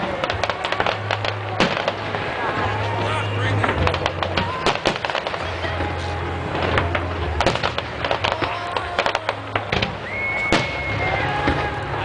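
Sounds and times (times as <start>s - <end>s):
fireworks popping and crackling: 0.0s - 12.0s
steady high whistle: 10.0s - 11.5s.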